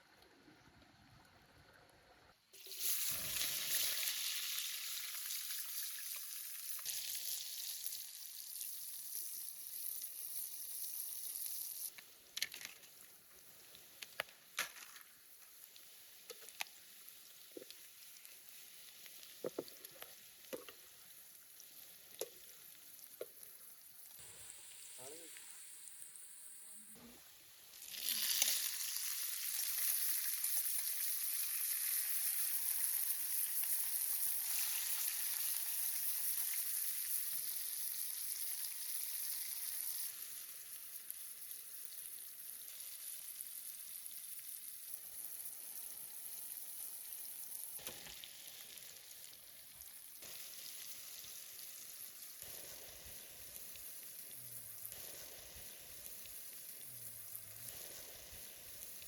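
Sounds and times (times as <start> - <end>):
food sizzling in hot oil: 2.5 - 59.0.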